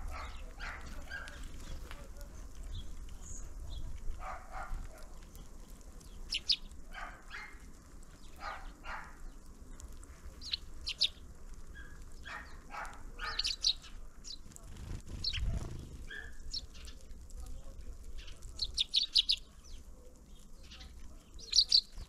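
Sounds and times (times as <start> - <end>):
rough calls or barks: 0.0 - 1.6, 4.1 - 5.3, 6.4 - 7.7, 8.3 - 9.4, 11.0 - 14.0, 15.1 - 17.0
small birds chirping: 0.0 - 22.0.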